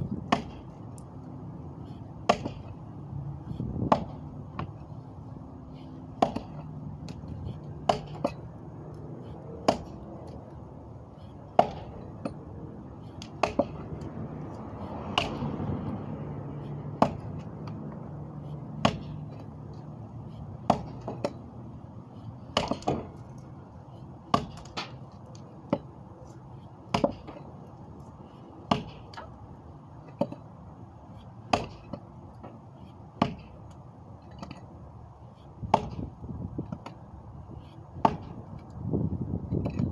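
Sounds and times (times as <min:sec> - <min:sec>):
sharp knocks or chops: 0:00.1 - 0:00.8, 0:02.2 - 0:02.7, 0:09.6 - 0:10.1, 0:11.5 - 0:12.4, 0:13.2 - 0:14.0, 0:15.0 - 0:15.8, 0:16.9 - 0:17.8, 0:18.8 - 0:19.4, 0:20.6 - 0:21.4, 0:35.6 - 0:36.1.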